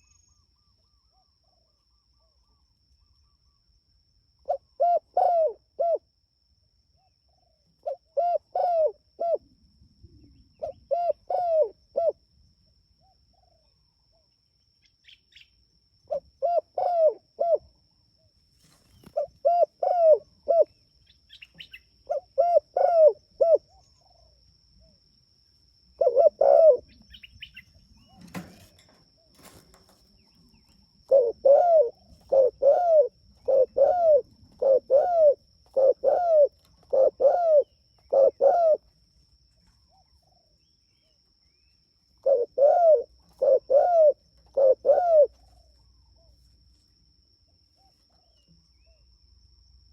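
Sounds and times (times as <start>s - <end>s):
dove cooing: 4.5s - 6.0s, 7.3s - 9.6s, 10.5s - 12.2s, 16.1s - 17.7s, 18.6s - 24.9s, 26.0s - 39.0s, 42.2s - 46.4s.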